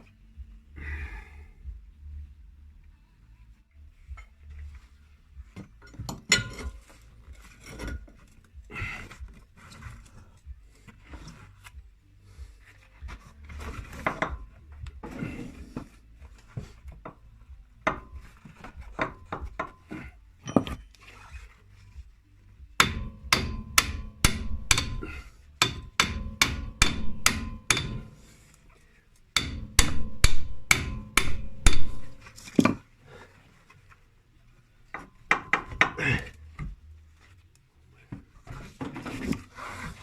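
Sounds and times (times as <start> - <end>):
hammer striking metal: 22.8 - 28.2, 29.4 - 32.3.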